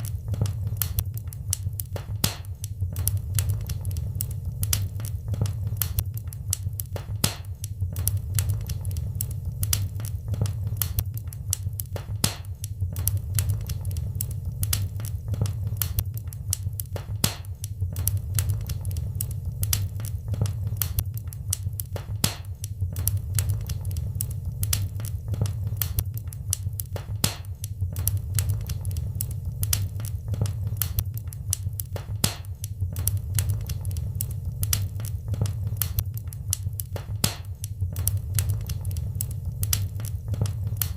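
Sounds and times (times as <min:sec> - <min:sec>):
low rumble of burning fire: 0:00.0 - 0:40.9
wood fire crackling: 0:00.0 - 0:40.9.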